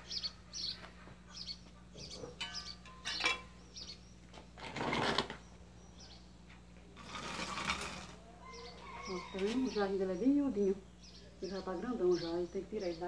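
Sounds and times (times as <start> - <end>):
small birds chirping: 0.0 - 4.6, 5.2 - 13.0
rustling scrape: 4.6 - 5.4, 7.0 - 8.2.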